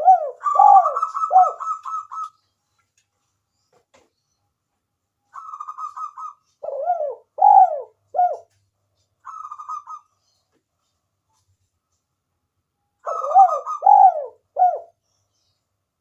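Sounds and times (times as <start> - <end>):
dove cooing: 0.0 - 2.3, 5.4 - 8.5, 9.3 - 10.1, 13.0 - 15.0.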